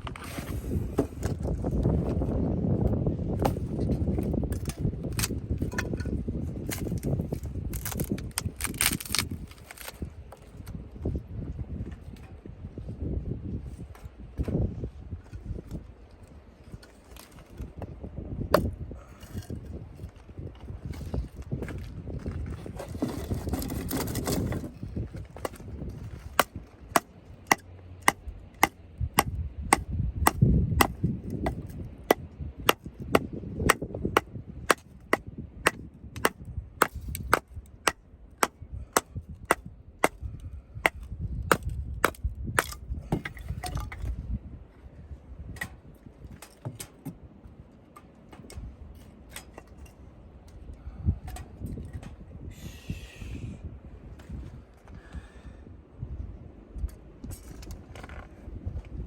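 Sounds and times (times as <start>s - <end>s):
hammer striking tent pegs: 26.4s - 40.2s.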